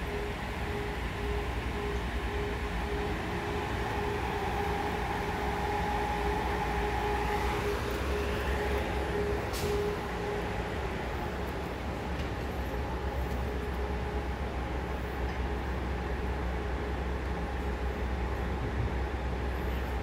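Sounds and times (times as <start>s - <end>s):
constant hum: 0.0s - 20.0s
passenger train rumbling: 0.0s - 20.0s.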